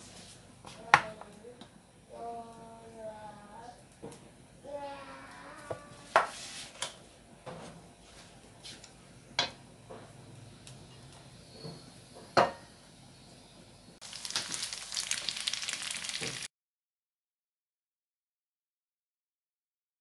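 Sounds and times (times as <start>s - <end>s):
hot oil sizzling and crackling: 14.0s - 16.5s.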